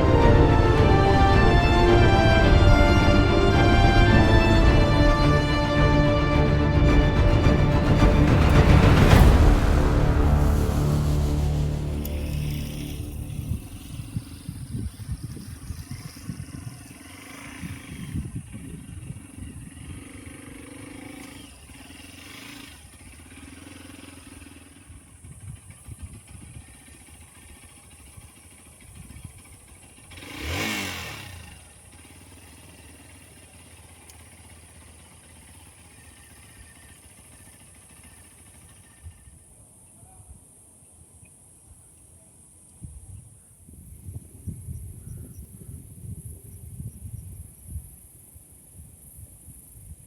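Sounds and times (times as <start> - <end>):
motorcycle engine rumbling: 0.0 - 40.0
steady high hiss: 8.2 - 16.1.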